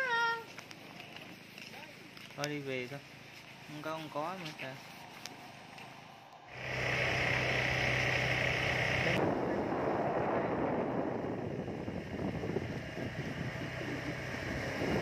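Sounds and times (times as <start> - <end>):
road noise: 0.0 - 15.0
motorbike engine humming: 5.2 - 9.2, 10.3 - 15.0
wind rushing on microphone: 9.2 - 15.0.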